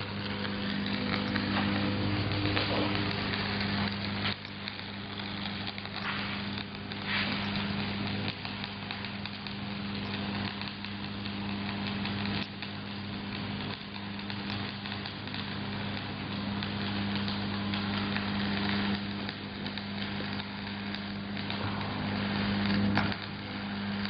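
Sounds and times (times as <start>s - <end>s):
welding arc crackling hiss: 0.0s - 24.0s
welding machine hum: 0.0s - 24.0s.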